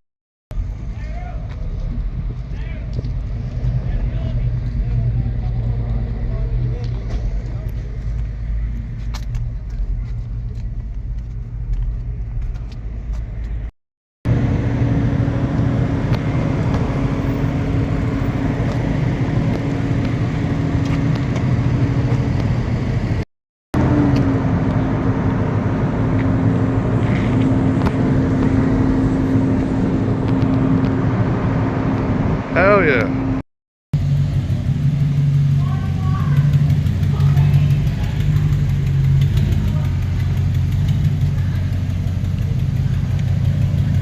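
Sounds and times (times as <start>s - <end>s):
truck engine running: 14.3s - 23.2s, 23.8s - 33.4s, 34.0s - 44.0s.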